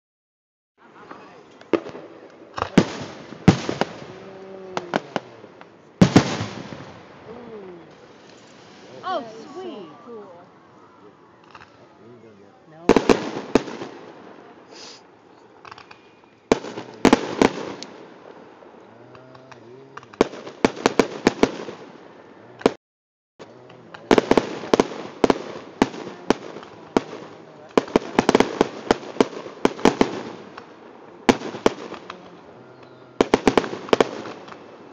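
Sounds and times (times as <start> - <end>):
fireworks exploding: 0.9 - 10.3, 12.8 - 22.8, 23.4 - 34.9.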